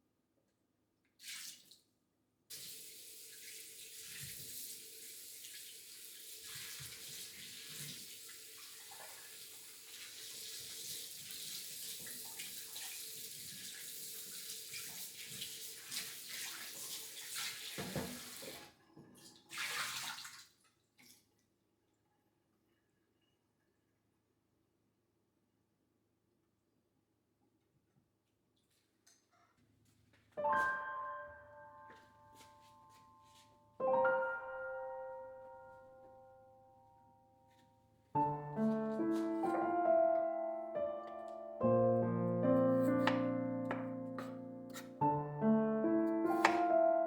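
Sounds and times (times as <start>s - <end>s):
tap water running into sink: 2.5s - 21.1s, 46.3s - 46.8s.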